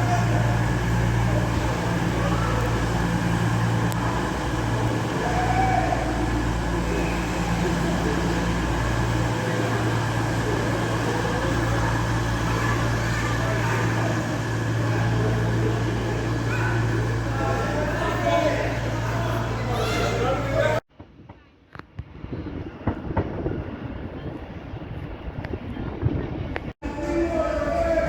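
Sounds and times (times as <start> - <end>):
station noise: 0.0 - 20.8
train hum at platform: 0.0 - 28.0.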